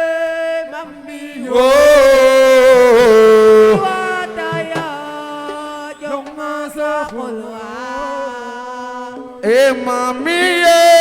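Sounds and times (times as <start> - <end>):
person singing: 0.7 - 11.0
light percussion taps: 4.4 - 7.2.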